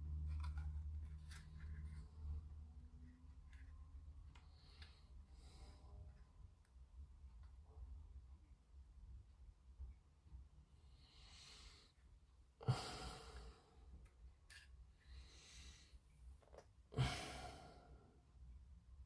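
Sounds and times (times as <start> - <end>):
man breathing in and out: 10.8 - 12.0, 12.6 - 13.9, 14.9 - 16.1, 16.9 - 18.2.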